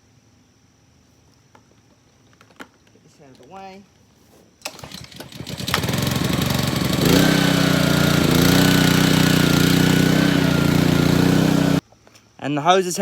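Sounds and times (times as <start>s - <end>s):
pressure washer engine running: 4.7s - 11.8s.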